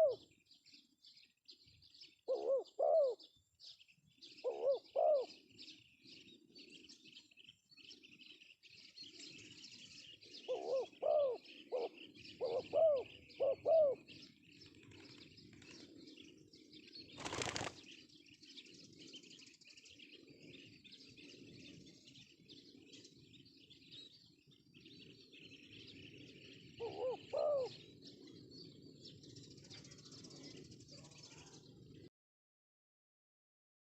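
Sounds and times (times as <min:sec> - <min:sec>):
dove cooing: 0:00.0 - 0:00.3, 0:02.3 - 0:03.3, 0:04.3 - 0:05.4, 0:10.2 - 0:15.8, 0:26.5 - 0:28.4
small birds chirping: 0:00.0 - 0:32.1.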